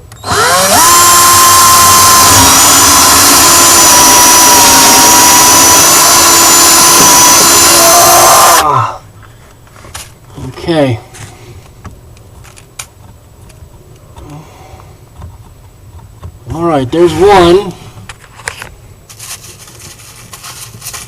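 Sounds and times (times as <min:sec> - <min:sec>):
electric drill boring into wood: 0:00.1 - 0:08.7.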